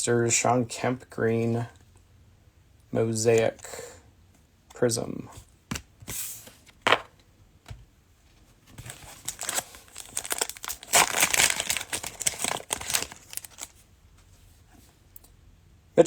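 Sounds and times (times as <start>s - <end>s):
cellophane wrapper crackling: 8.8s - 13.8s.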